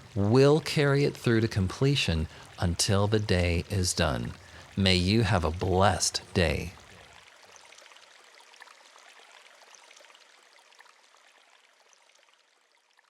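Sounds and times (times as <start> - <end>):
stream trickling: 0.0 - 13.0.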